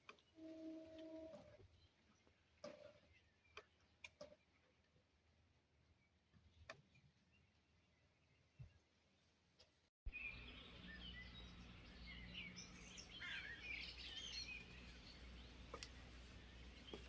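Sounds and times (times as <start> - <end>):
small birds chirping: 5.8 - 17.0.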